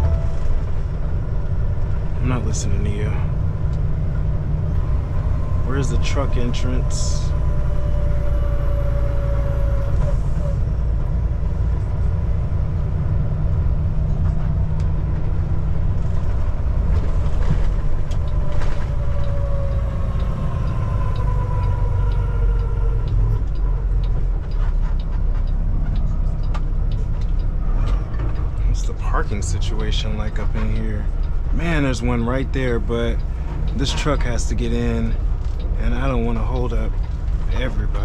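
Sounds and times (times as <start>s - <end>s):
diesel truck engine rumble: 0.0s - 38.0s
engine whine sliding down: 13.3s - 24.7s.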